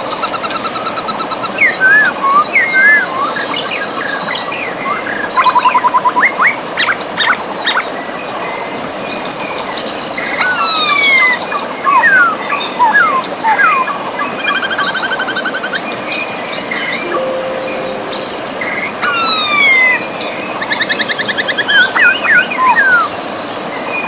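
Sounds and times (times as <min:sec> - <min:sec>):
bird trill: 0:17.1 - 0:21.0.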